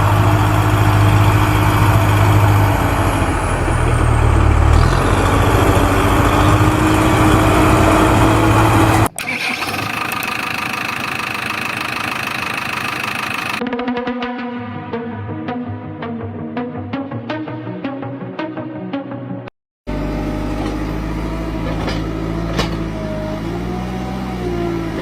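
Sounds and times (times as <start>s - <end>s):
heavy vehicle engine rumbling: 0.0s - 13.6s, 19.9s - 25.0s
machine with steady high tone: 0.0s - 13.6s.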